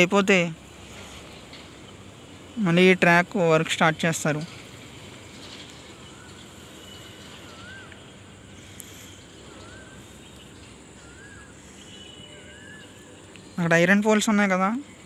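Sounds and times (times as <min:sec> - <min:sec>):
outdoor background noise: 0:00.0 - 0:15.0
bird chirping: 0:05.2 - 0:15.0.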